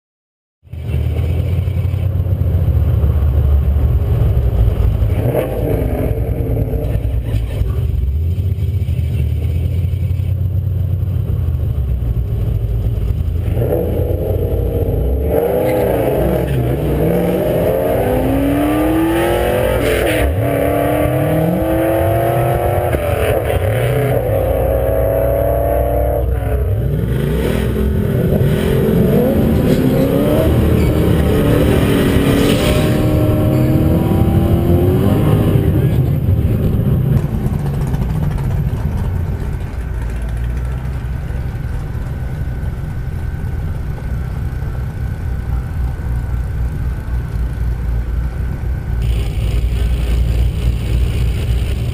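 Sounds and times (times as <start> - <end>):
drag car engines revving: 0.7 - 51.9
car engine idling: 6.7 - 13.5, 35.8 - 51.9.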